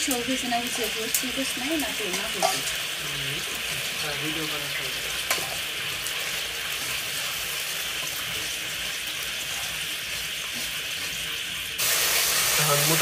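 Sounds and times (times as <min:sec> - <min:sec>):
oil sizzling in a pan: 0:00.0 - 0:13.0
spatula clinking on pan: 0:02.1 - 0:02.7
metal spatula stirring: 0:02.1 - 0:02.8.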